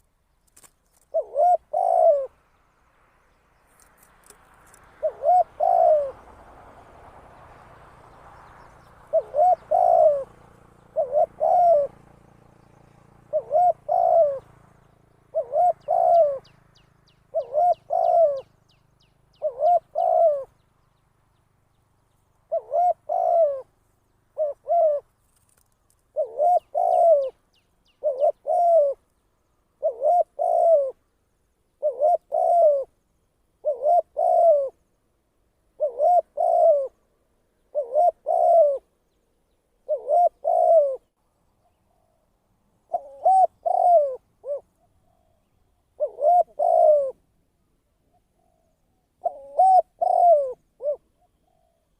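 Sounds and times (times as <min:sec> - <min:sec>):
dove cooing: 0:00.9 - 0:02.4, 0:04.2 - 0:06.5, 0:08.8 - 0:20.6, 0:22.4 - 0:29.1, 0:29.8 - 0:31.0, 0:31.8 - 0:33.0, 0:33.6 - 0:34.8, 0:35.7 - 0:37.0, 0:37.6 - 0:38.9, 0:39.8 - 0:41.1, 0:42.8 - 0:47.3, 0:48.1 - 0:51.9.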